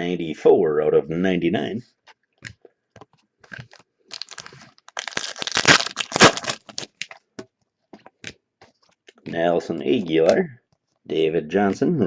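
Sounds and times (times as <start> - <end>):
wrapper crinkling: 3.4 - 7.2.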